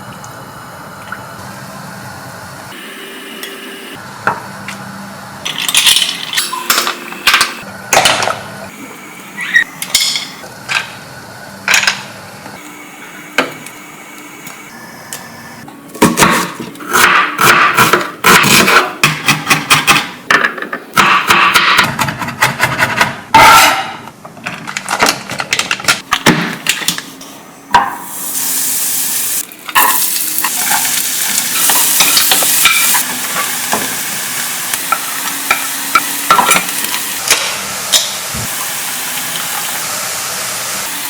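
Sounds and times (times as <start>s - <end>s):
utensils clattering against pots: 5.4s - 8.4s, 29.4s - 39.8s.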